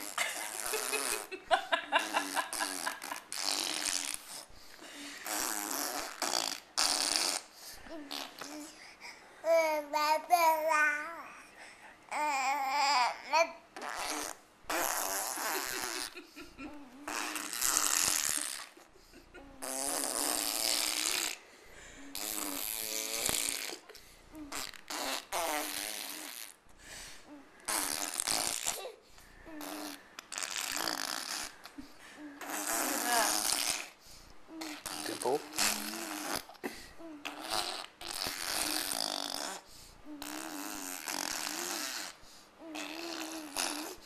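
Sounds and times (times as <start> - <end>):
baby blowing raspberries: 0.0 - 1.3, 2.0 - 10.8, 12.1 - 44.0
baby babbling: 9.4 - 11.5, 12.1 - 14.1.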